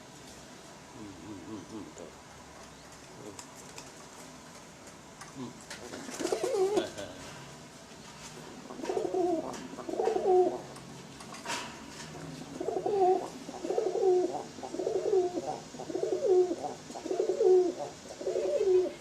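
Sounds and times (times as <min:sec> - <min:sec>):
pigeon cooing: 0:05.4 - 0:07.0, 0:08.6 - 0:10.7, 0:12.5 - 0:19.0.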